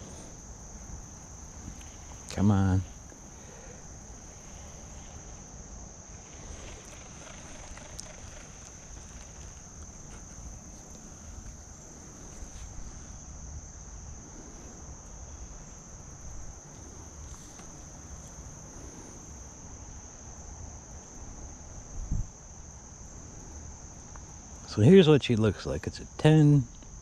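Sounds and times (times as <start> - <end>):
cricket chorus chirring: 0.0 - 27.0.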